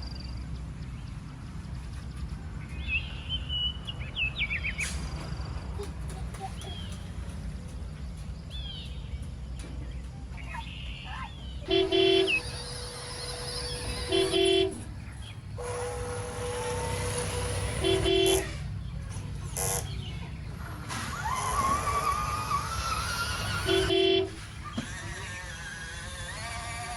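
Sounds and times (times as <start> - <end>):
vehicle horn beeps: 11.7 - 15.0, 15.6 - 18.8, 23.4 - 24.6.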